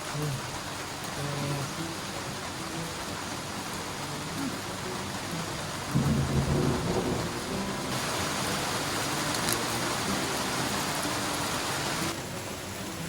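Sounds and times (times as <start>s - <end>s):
heavy rain falling: 0.0s - 13.0s
low roll of thunder: 5.9s - 8.8s.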